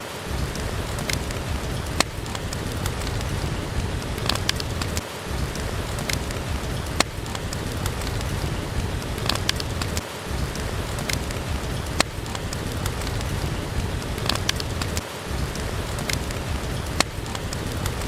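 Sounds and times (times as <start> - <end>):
steady rain: 0.0 - 18.0
wood fire crackling and popping: 0.0 - 18.0.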